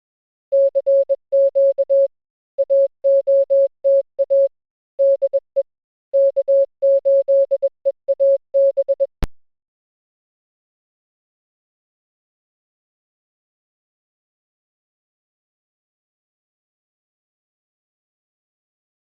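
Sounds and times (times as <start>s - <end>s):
morse code beep tone: 0.6s - 5.6s, 6.2s - 9.3s.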